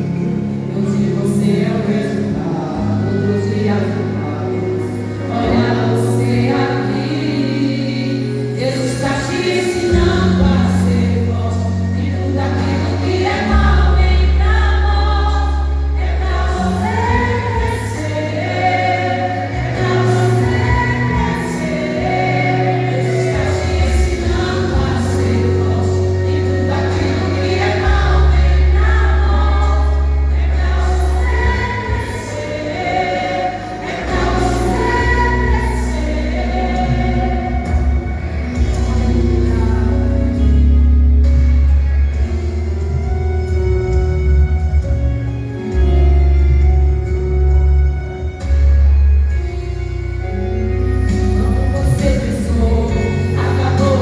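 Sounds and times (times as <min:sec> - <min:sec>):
group singing a gospel song: 0:00.0 - 0:41.4, 0:51.1 - 0:54.0
sustained bass accompaniment: 0:00.0 - 0:54.0.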